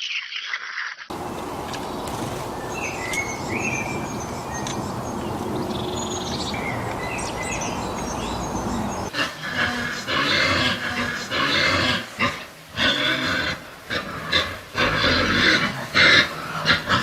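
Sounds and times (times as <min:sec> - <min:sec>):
birds chirping: 0:01.1 - 0:11.4
steady low background noise: 0:01.1 - 0:17.0.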